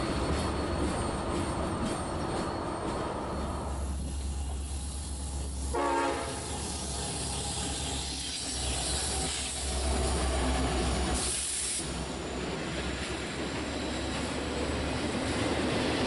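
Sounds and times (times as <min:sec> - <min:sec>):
diesel locomotive engines rumbling: 0:00.0 - 0:16.0
train horn toot: 0:05.7 - 0:06.7
burst of hiss: 0:11.0 - 0:12.0.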